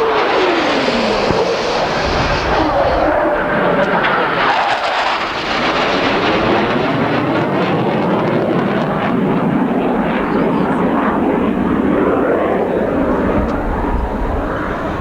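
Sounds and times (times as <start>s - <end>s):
fighter jet flying past: 0.0s - 15.0s.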